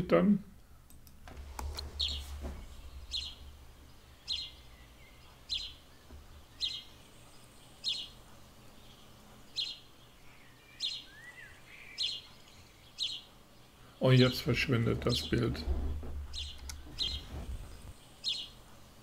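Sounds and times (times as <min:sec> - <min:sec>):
faint bird chirps: 0:01.8 - 0:18.7.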